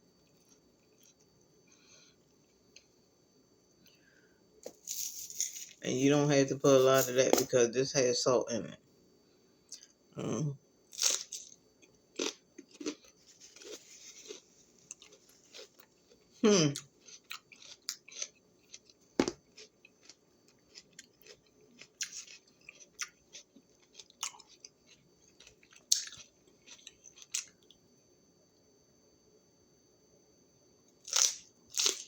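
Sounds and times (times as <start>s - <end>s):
person chewing crunchy food: 0.2s - 1.3s, 10.9s - 27.8s, 31.0s - 32.0s.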